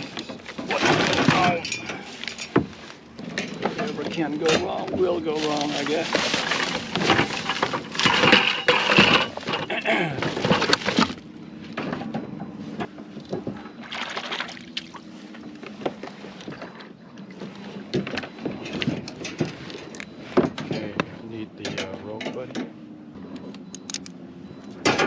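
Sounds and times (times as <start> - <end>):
gear rustling and knocking: 0.0 - 13.8
water sloshing against hull: 0.0 - 21.8.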